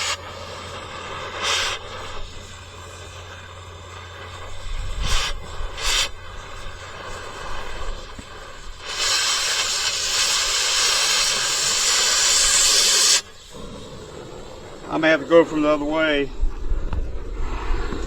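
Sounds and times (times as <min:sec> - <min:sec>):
cutting torch hissing: 0:00.0 - 0:18.0.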